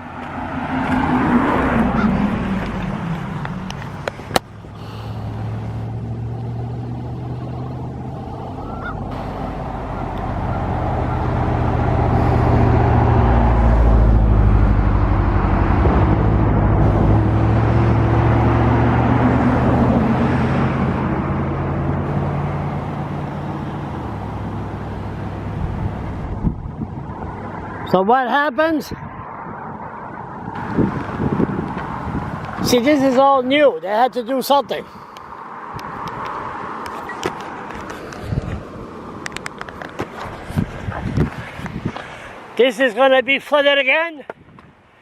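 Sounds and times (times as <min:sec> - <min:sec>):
vehicle engine and road noise: 0:00.0 - 0:45.0.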